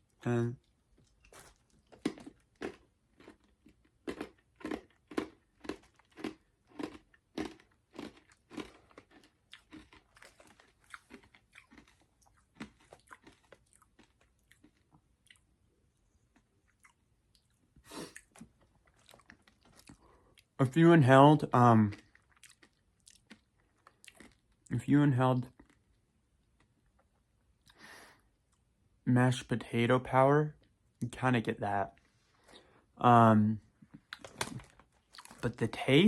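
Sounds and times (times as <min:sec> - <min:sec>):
person chewing candy: 0:00.6 - 0:20.6, 0:21.6 - 0:24.8, 0:33.8 - 0:35.6.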